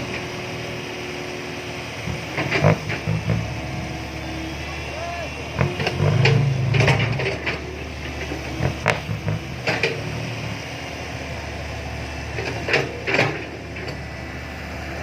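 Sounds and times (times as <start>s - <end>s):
heavy vehicle engine humming: 0.0s - 15.0s
sharp clanks and knocks: 2.1s - 3.5s, 5.6s - 10.1s, 12.4s - 14.1s.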